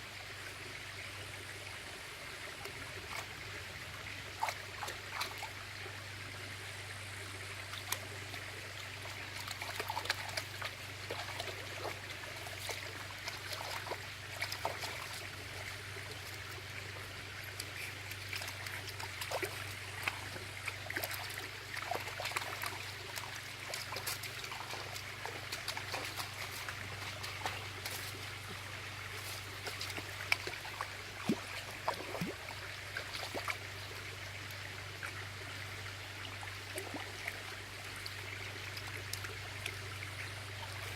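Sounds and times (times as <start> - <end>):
water trickling: 0.7 - 40.9
short clicks and splashes: 9.0 - 15.2, 17.4 - 33.6.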